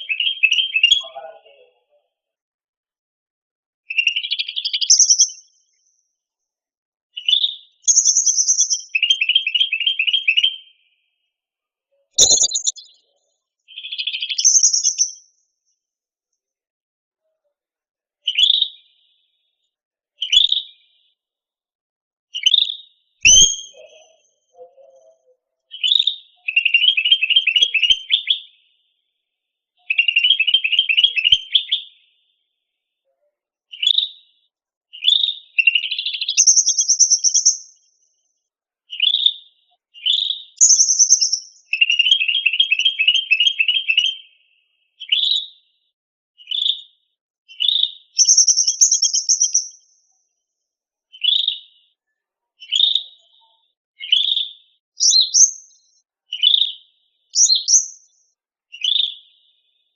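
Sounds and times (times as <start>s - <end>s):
bird chirping and trilling: 3.9s - 5.5s, 7.2s - 10.7s, 12.1s - 13.1s, 13.7s - 15.3s, 22.4s - 24.0s, 35.0s - 37.8s, 40.0s - 44.2s, 47.5s - 49.8s, 52.6s - 53.2s, 54.0s - 54.4s, 55.0s - 56.7s, 57.4s - 58.2s.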